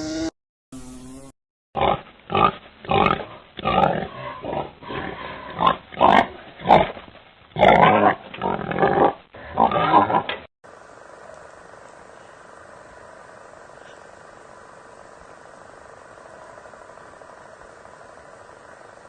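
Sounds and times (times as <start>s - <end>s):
animal grunting: 1.8s - 7.0s, 7.6s - 10.4s.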